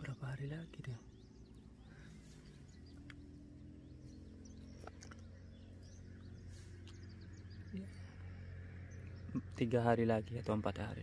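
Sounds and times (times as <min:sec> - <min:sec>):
low hum: 0:00.0 - 0:11.0
small birds chirping: 0:00.0 - 0:11.0
soft clicks: 0:02.9 - 0:03.2.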